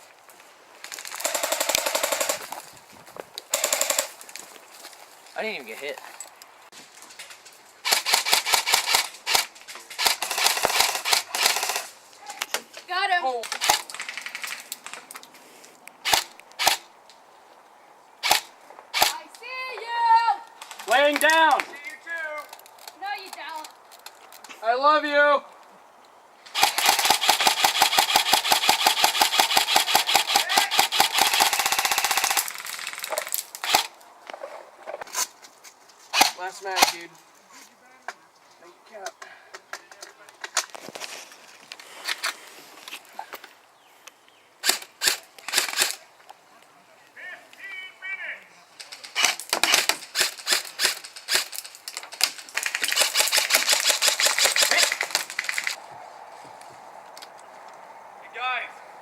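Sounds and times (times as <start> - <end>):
airsoft guns firing full auto: 1.2 - 2.4, 3.5 - 4.1, 7.8 - 11.9, 26.5 - 33.9, 49.0 - 51.6, 52.5 - 55.8.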